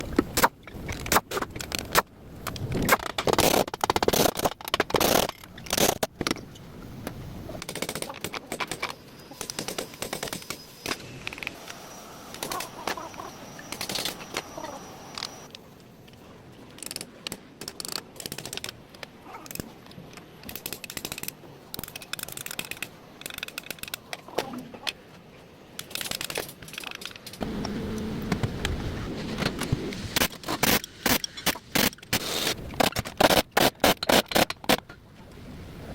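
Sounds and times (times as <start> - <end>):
faint high whine: 8.9 - 15.5.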